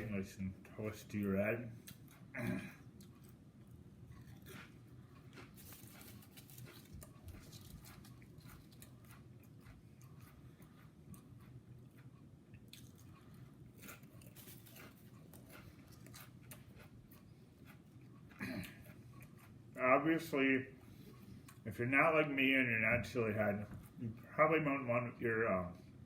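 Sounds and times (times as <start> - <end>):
low steady hum: 0.0 - 26.0
chewing and biting food: 1.1 - 19.8, 20.8 - 21.7.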